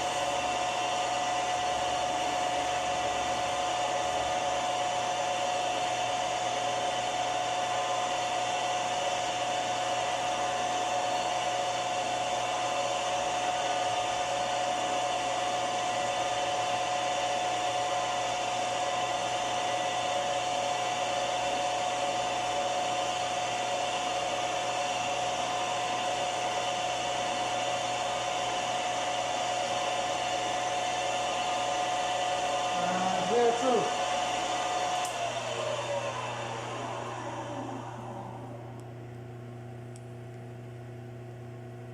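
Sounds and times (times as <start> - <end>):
machine-tool motor whining: 32.0 - 38.8.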